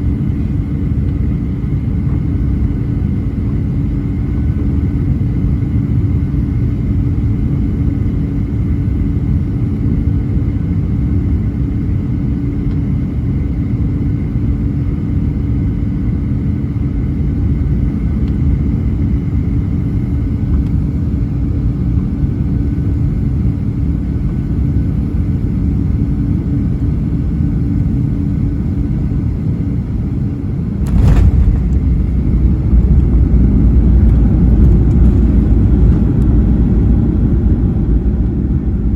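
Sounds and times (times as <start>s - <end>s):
jet engine cabin rumble: 0.0s - 38.9s
jet rolling on runway: 30.6s - 38.5s
wheels touching down thump: 30.8s - 35.2s.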